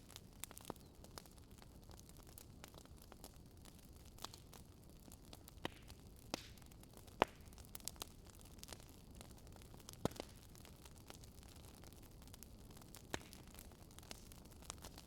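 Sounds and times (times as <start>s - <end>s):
wood fire crackling: 0.0s - 15.0s
sharp pops from fire: 5.4s - 8.9s, 9.8s - 11.2s, 12.4s - 15.0s.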